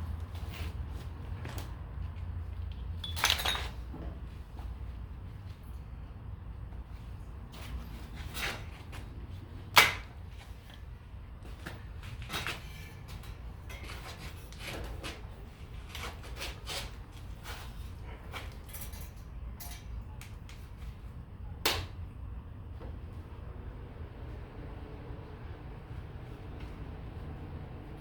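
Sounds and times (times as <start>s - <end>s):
metal pieces knocking and clanking: 3.0s - 3.7s.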